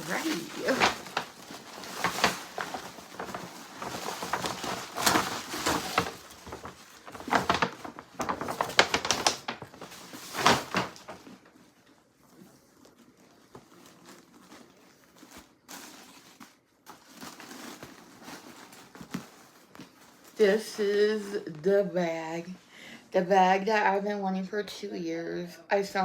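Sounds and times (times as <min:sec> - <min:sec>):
packaging rustling and crinkling: 0:00.0 - 0:21.7.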